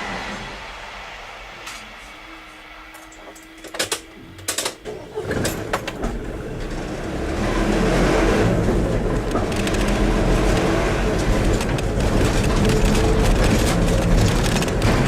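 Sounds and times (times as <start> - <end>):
vehicle engine and tyres: 0.0 - 15.0
sharp clicks: 9.3 - 10.7.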